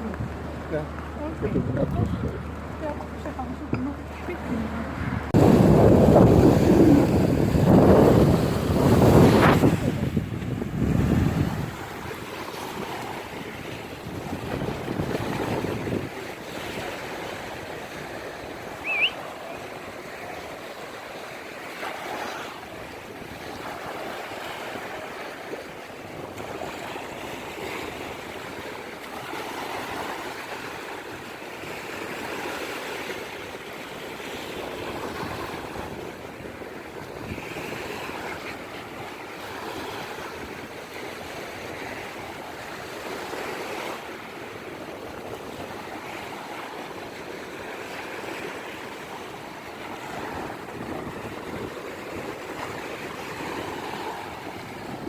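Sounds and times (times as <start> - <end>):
waves breaking: 0.0 - 55.0
high chirp: 18.8 - 19.2.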